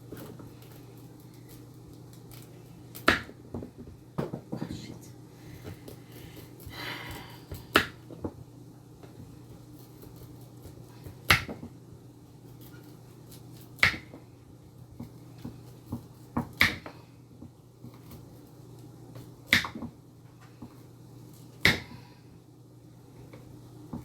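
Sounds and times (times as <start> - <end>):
knife chopping on cutting board: 7.1 - 8.0, 9.9 - 11.7, 13.8 - 14.2, 15.0 - 17.0, 19.5 - 19.9, 21.6 - 22.0.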